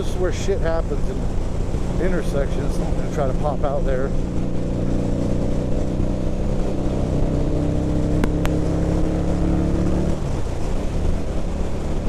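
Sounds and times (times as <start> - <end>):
motorcycle engine under throttle: 0.9 - 12.0
sharp clicks: 8.2 - 9.1.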